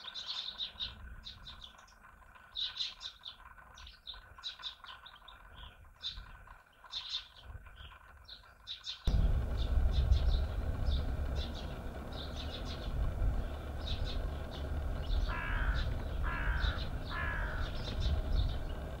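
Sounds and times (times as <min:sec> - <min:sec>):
birds chirping: 0:00.0 - 0:19.0
drawn-out bird calls: 0:00.0 - 0:19.0
steady low rumble: 0:09.1 - 0:19.0.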